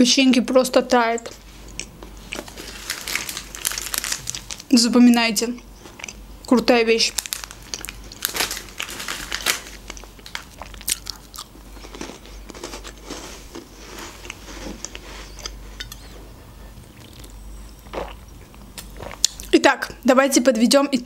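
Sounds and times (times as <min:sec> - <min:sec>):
soft chewing: 0:01.2 - 0:04.7, 0:05.5 - 0:19.6
crunching cookies: 0:01.2 - 0:16.2.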